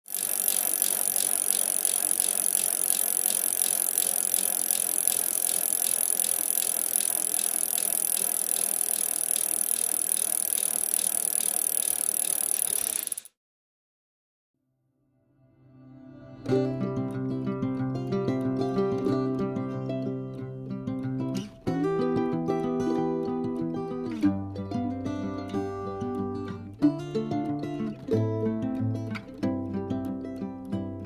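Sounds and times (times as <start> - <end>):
fast rattling clicks: 0.0 - 13.3.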